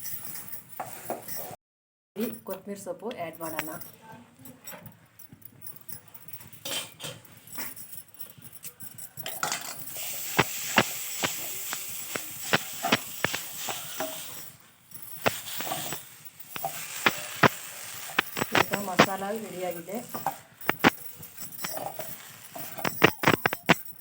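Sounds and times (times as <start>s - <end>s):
spoon clinking: 7.6s - 24.0s
metal spoon scraping a pan: 9.4s - 14.6s, 15.2s - 23.8s
light sizzle: 9.4s - 23.8s.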